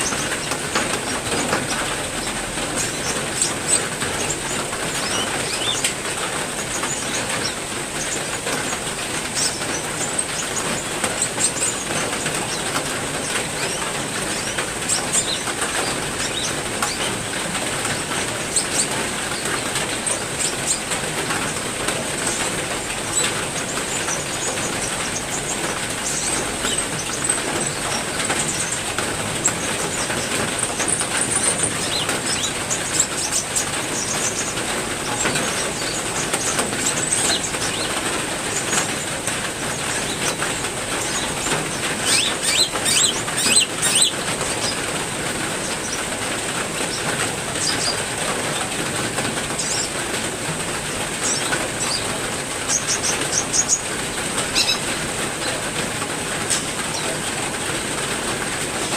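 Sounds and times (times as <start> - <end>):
heavy rain with pattering drops: 0.0 - 58.9
bird chirps: 42.0 - 44.2.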